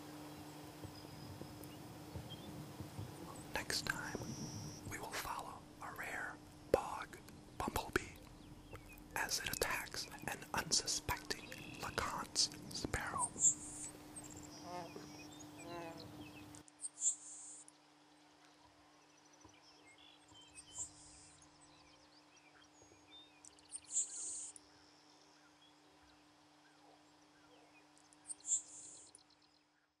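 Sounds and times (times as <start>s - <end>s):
sparrow high thin buzzes: 13.1s - 17.6s.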